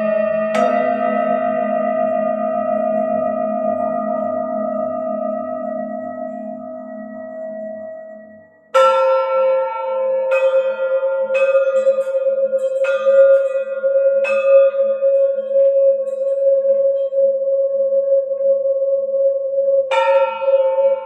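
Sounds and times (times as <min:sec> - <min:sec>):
singing bowl ringing: 0:00.0 - 0:08.6.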